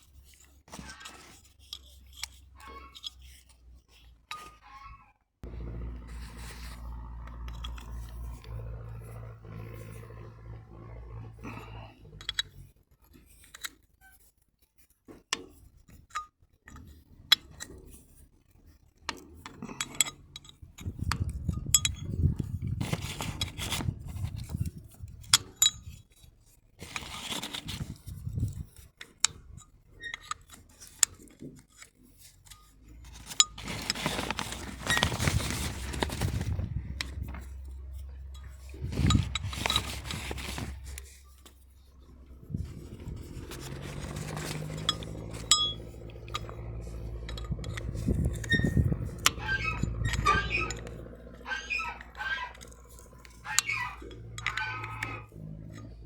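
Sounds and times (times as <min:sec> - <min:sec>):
low hum: 0:05.4 - 0:12.7, 0:33.0 - 0:56.0
metal tools clinking and scraping: 0:19.4 - 0:56.0.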